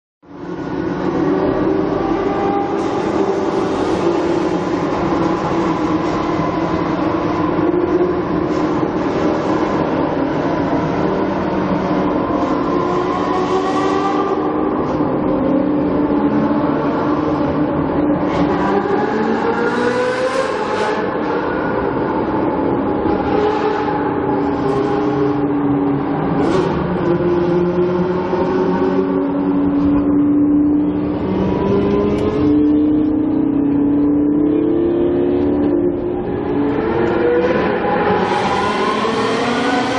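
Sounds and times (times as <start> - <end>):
car engine deep drone: 0.2 - 39.9
vehicle running hum: 0.2 - 39.9.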